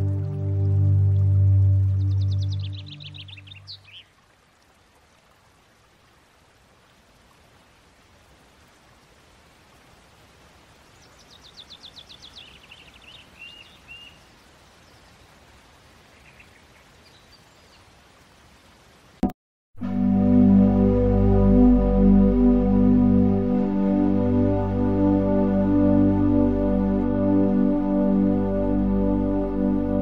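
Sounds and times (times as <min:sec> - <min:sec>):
held music chord: 0:00.0 - 0:03.1, 0:19.8 - 0:30.0
watery hiss like a stream: 0:00.0 - 0:19.2
songbird trilling and chirping: 0:02.1 - 0:04.1, 0:11.2 - 0:14.2.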